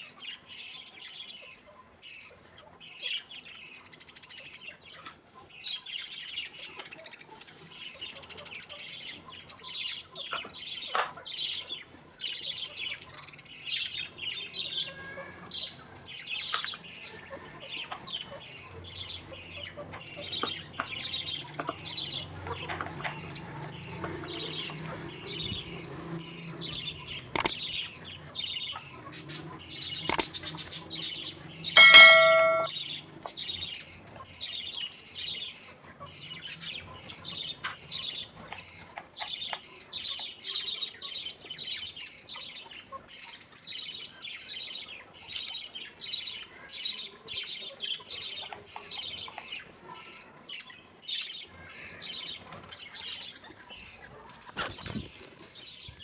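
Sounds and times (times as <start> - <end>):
small birds chirping: 0.0 - 56.0
loud ringing tone: 31.8 - 32.7
sharp knocks: 31.8 - 32.7.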